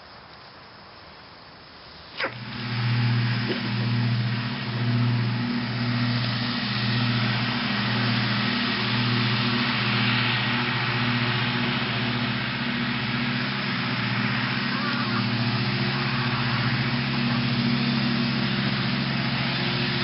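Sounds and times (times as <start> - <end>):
tractor engine droning: 2.0 - 20.0.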